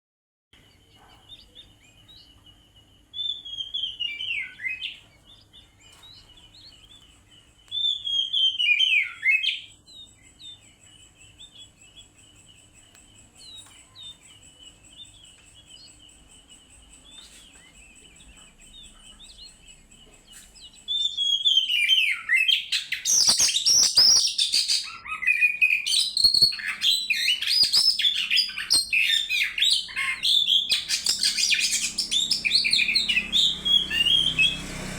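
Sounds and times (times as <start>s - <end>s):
bird singing warbling phrases: 0.6s - 34.9s.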